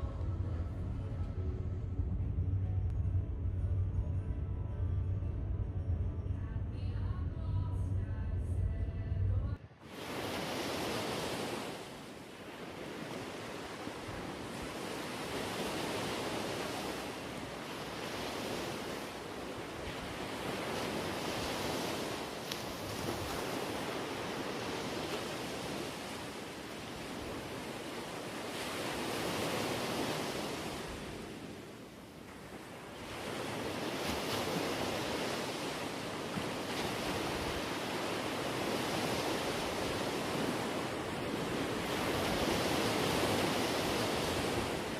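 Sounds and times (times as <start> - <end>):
wind: 0.0 - 44.9
sea water washing and surging: 9.6 - 44.9.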